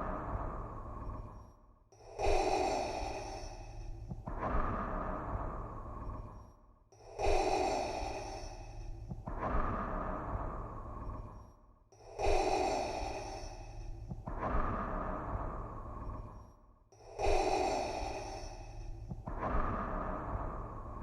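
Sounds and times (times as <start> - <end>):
respirator breathing: 7.1 - 9.3, 12.0 - 21.0.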